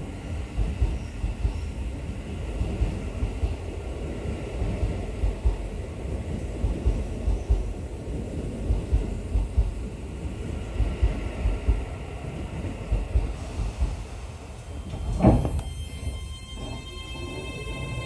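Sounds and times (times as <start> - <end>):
train wheels rumbling: 0.0 - 18.0
low thumps: 10.7 - 11.9, 12.6 - 14.1.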